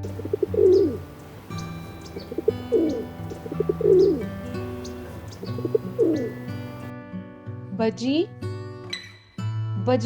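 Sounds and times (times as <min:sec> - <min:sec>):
pigeon cooing: 0:00.0 - 0:06.9
light guitar music: 0:00.0 - 0:09.8.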